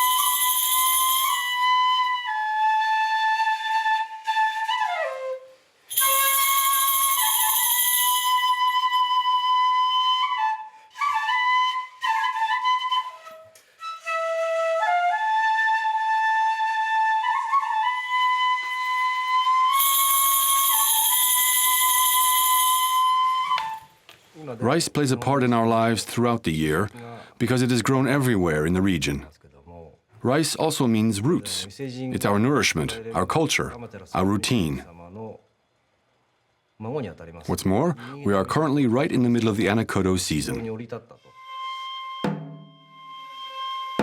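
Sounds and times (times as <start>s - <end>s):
solo flute melody: 0.0s - 24.0s, 41.2s - 44.0s.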